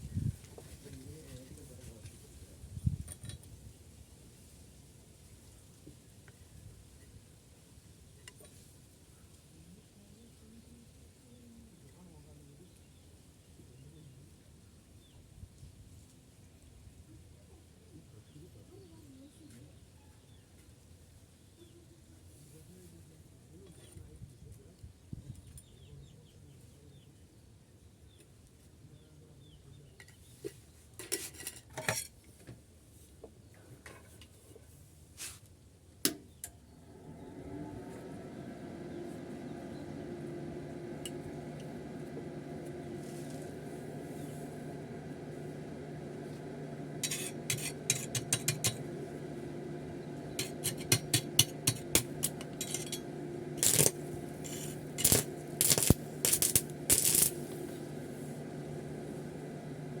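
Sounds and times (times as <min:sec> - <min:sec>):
steady low hum: 0:37.0 - 1:00.0
metal pieces clinking and scraping: 0:51.7 - 0:53.0.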